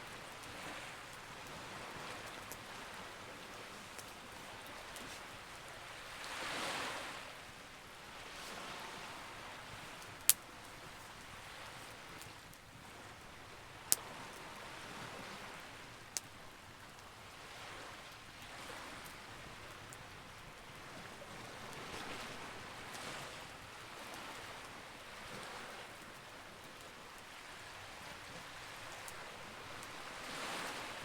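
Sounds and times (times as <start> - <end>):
campfire popping: 0.0 - 6.0, 9.5 - 12.8
campfire crackling and hissing: 0.0 - 31.0.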